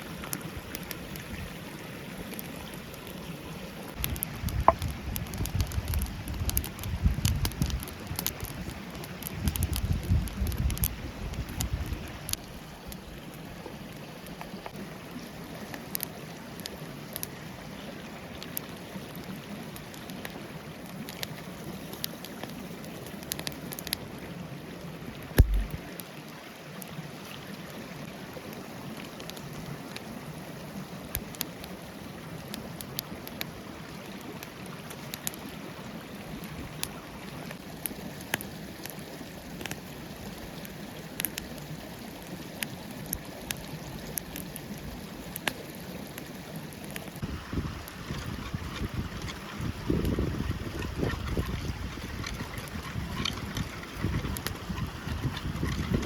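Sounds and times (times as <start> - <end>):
sharp crackles and pops: 0.0 - 24.1, 25.1 - 27.8, 28.4 - 30.1, 30.9 - 35.6, 36.2 - 56.0
forest stream flowing: 0.0 - 56.0
loud low thump: 25.4 - 25.8.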